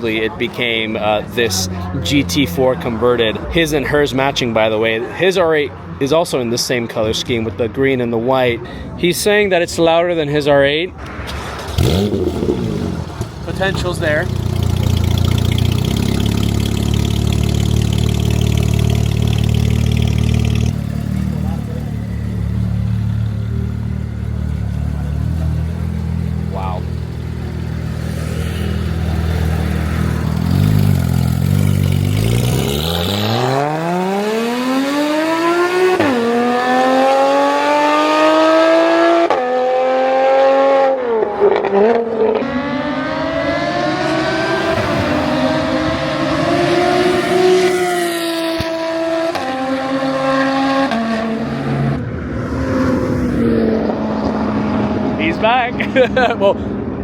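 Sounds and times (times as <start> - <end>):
car engine idling: 10.9 - 32.5
car engine accelerating hard: 11.0 - 57.0.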